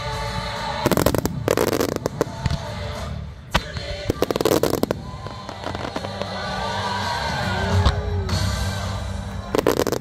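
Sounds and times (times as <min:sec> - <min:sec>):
show music: 0:00.0 - 0:10.0
fireworks bangs and cracks: 0:00.8 - 0:07.0, 0:09.5 - 0:10.0.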